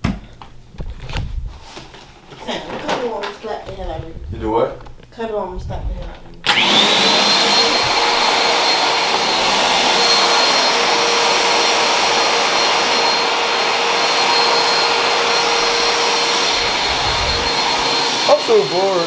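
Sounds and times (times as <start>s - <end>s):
vacuum cleaner running: 0.1s - 19.0s.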